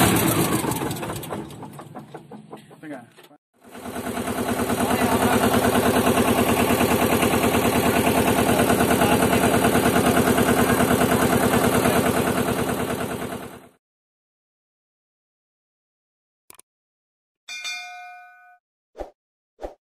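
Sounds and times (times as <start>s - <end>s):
road roller engine idling: 0.0s - 13.8s.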